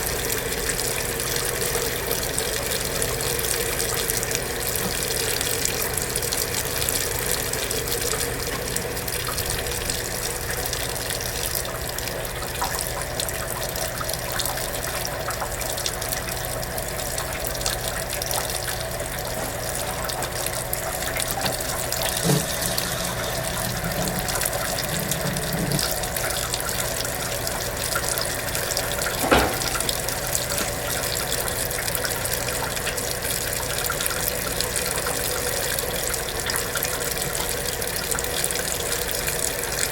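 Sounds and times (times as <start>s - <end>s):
water running into tub: 0.0s - 39.9s
sharp knock: 29.2s - 30.0s.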